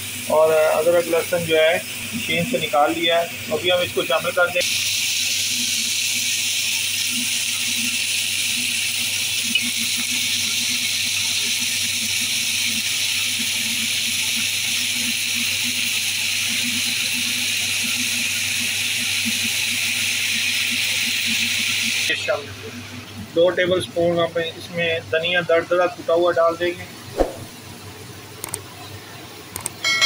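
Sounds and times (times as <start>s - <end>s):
onions and meat sizzling in oil: 4.6s - 22.1s.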